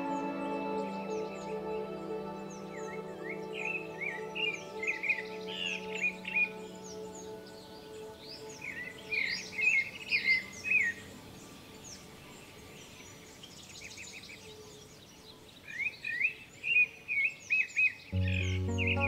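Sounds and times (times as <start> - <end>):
held music tones: 18.2 - 19.0.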